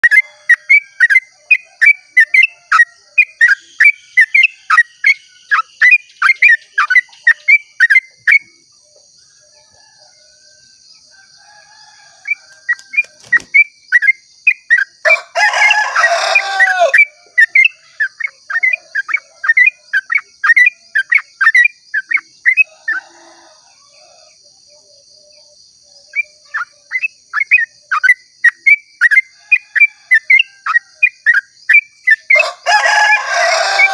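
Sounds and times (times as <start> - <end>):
bird rapid repeated song: 0.0 - 9.8, 11.4 - 22.7, 25.2 - 33.9
harsh bird call: 15.1 - 17.9, 32.4 - 33.9.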